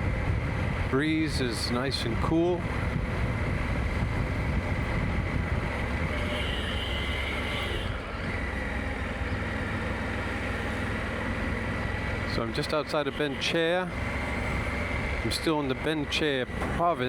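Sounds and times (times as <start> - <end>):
wind noise: 0.0 - 6.6
motorcycle engine rumble: 0.0 - 6.9, 7.8 - 17.0.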